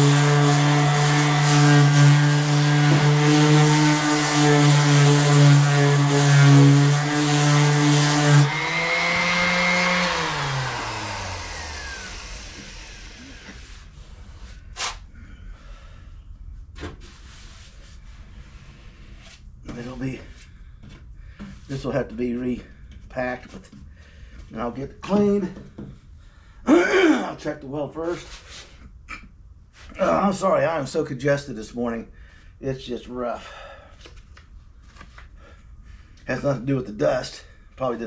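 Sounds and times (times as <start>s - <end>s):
power sander running: 0.0s - 13.9s
motor spinning down: 7.2s - 13.6s.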